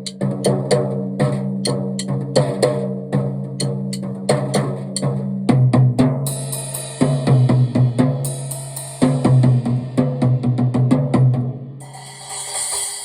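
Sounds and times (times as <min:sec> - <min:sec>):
snare and bass drum accents: 0:00.0 - 0:13.0
cymbal and hi-hat strokes: 0:06.3 - 0:10.2, 0:11.8 - 0:13.0.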